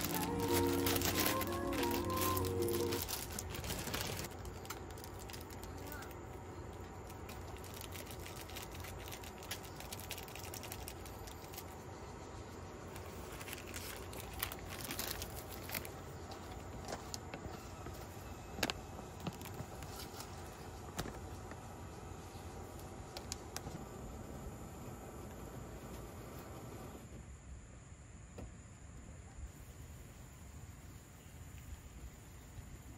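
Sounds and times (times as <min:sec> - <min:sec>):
rustling: 0:00.0 - 0:11.8, 0:12.8 - 0:22.8
low background noise: 0:00.0 - 0:32.9.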